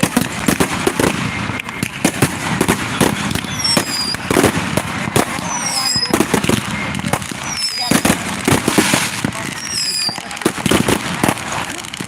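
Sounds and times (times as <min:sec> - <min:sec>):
fireworks bangs and crackles: 0:00.0 - 0:12.0
falling firework whistles: 0:03.3 - 0:04.5, 0:05.2 - 0:06.5, 0:07.4 - 0:11.0.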